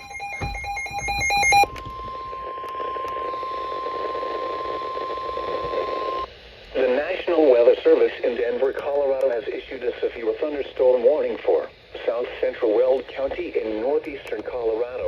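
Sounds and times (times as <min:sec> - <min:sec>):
chirping data bursts: 0:00.0 - 0:06.3
steady warning alarm tone: 0:00.0 - 0:06.3.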